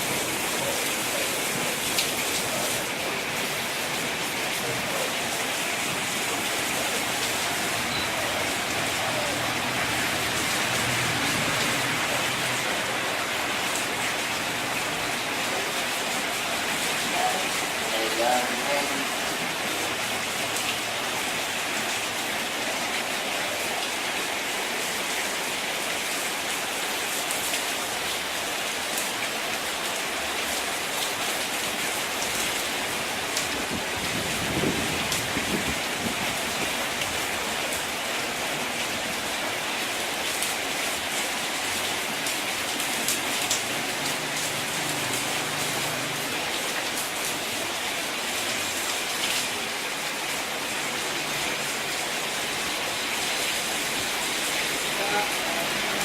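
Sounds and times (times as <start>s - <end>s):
rain hissing: 0.0s - 56.0s
raindrops ticking on surface: 0.1s - 22.2s, 34.4s - 47.6s.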